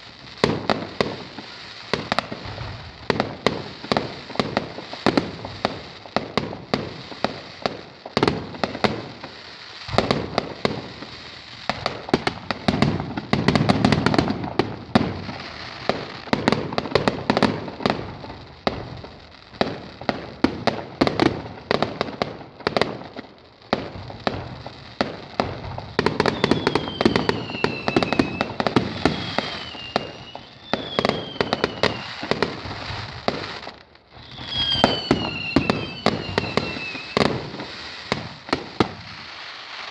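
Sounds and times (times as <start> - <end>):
fireworks bangs: 0.0 - 39.9
fireworks crackling and popping: 0.0 - 39.9
falling whistles: 26.2 - 32.2, 34.2 - 37.3.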